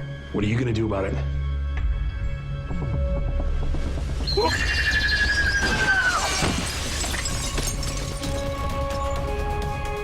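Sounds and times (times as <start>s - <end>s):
piercing high scream: 4.3s - 6.5s.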